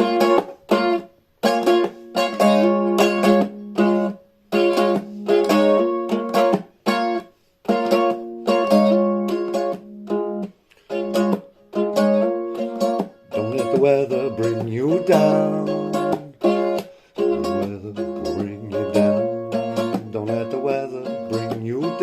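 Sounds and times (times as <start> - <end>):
strummed string instrument chords: 11.0 - 22.0.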